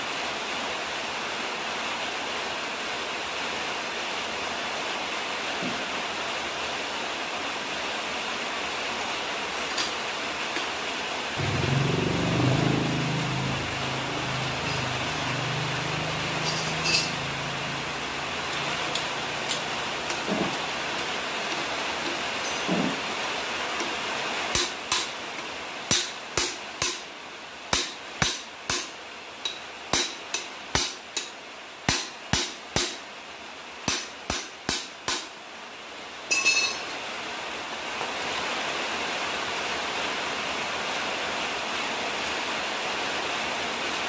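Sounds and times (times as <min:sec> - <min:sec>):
hammer tapping: 0:25.9 - 0:27.0.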